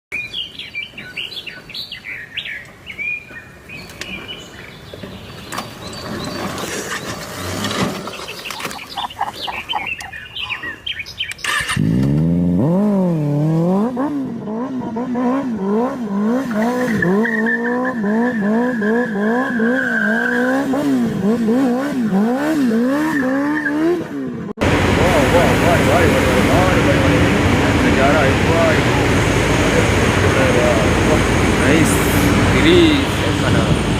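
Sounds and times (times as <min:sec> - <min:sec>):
motorcycle engine revving: 0:05.0 - 0:09.1, 0:11.4 - 0:33.9
high chirps: 0:08.2 - 0:11.7.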